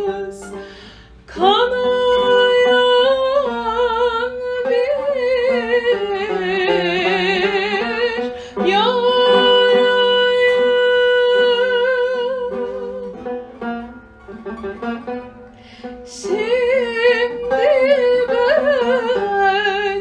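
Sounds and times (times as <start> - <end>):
plucked string accompaniment: 0.0 - 20.0
woman singing melisma: 1.3 - 13.2, 16.1 - 20.0.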